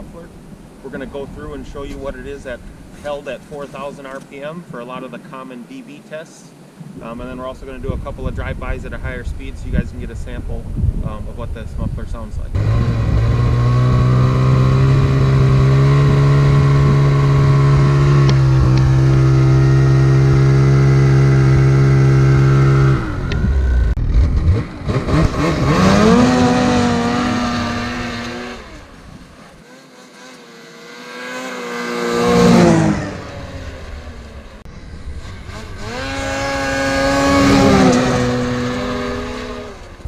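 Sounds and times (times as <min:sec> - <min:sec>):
snowmobile engine revving: 0:12.5 - 0:40.0.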